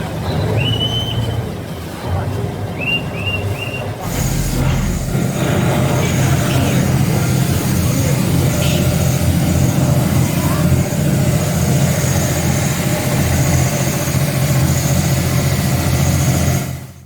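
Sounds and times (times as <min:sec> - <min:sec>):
boat engine running: 0:00.0 - 0:17.0
wind and water hiss: 0:04.0 - 0:16.7.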